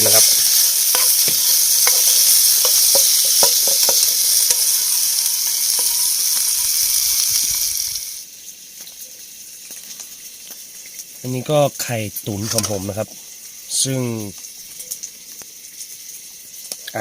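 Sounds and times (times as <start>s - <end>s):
food sizzling in a hot pan: 0.0s - 17.0s
utensil tapping against pan: 0.9s - 4.7s.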